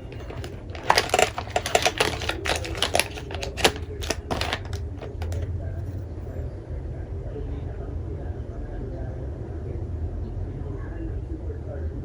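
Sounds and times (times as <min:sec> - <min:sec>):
sharp clicks and taps: 0:00.0 - 0:05.5.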